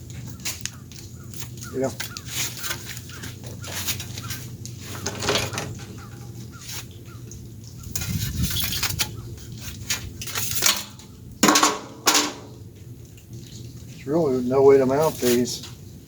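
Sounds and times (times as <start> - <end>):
metal hardware clinking: 10.5 - 12.5
louder metal clanks: 10.7 - 12.6.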